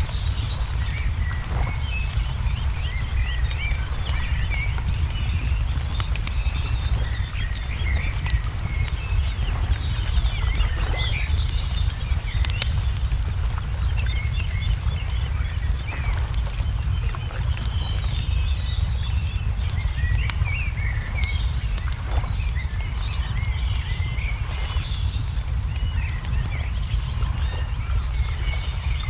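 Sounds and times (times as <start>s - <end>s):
low rumble: 0.0s - 29.0s
small birds chirping: 0.0s - 29.0s
wood fire crackling: 0.0s - 29.0s.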